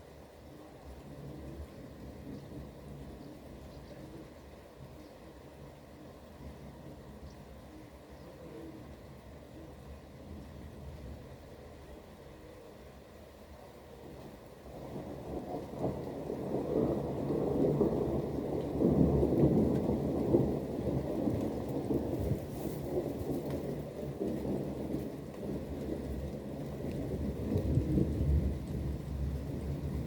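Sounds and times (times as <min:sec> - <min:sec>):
rain: 0:00.0 - 0:30.0
rolling thunder: 0:14.7 - 0:30.0.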